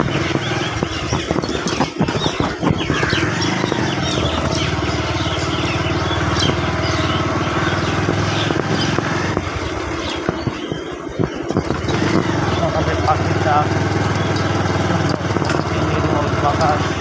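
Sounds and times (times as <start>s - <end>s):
small motorbike engine: 0.0s - 17.0s.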